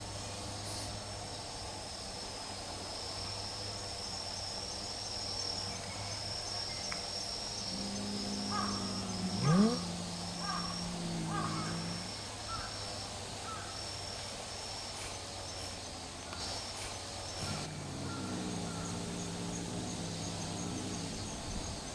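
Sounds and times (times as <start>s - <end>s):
insects trilling: 0.0s - 21.9s
sharp rising cat yowl: 7.6s - 12.3s, 17.6s - 21.5s
cat yowling growl: 7.6s - 12.7s, 17.4s - 21.9s.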